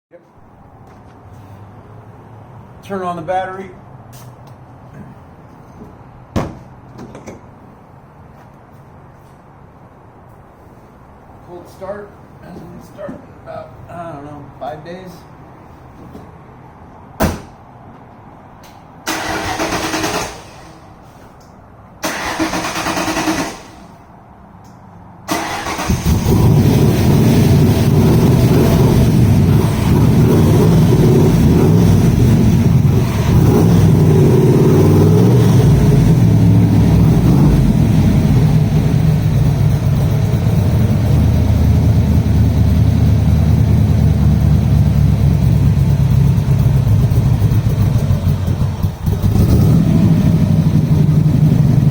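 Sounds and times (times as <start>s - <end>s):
engine cranking: 19.1s - 20.7s, 22.0s - 23.8s, 25.3s - 28.4s
engine running: 22.0s - 24.1s, 25.2s - 51.9s.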